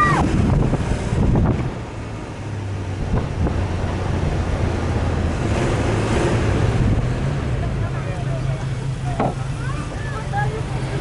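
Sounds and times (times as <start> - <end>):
noisy rush: 0.0 - 11.0
vehicle engine drone: 0.0 - 11.0.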